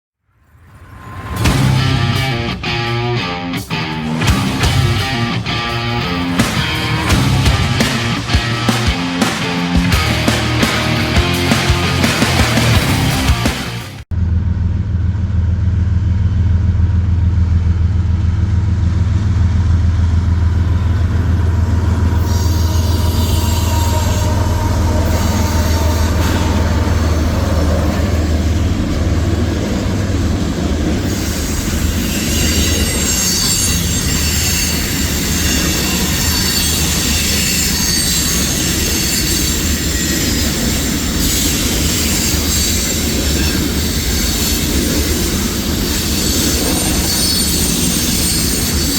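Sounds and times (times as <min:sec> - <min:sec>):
diesel locomotive engine drone: 0:00.4 - 0:48.9
train wheel squeal: 0:20.3 - 0:48.9.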